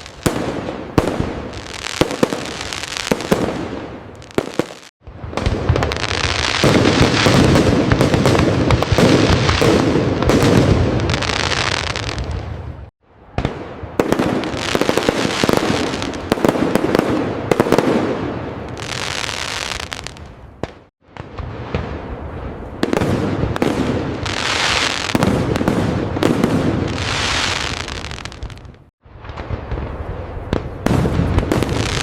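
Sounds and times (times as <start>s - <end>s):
firework cracks and pops: 0.0s - 12.4s, 22.8s - 32.0s.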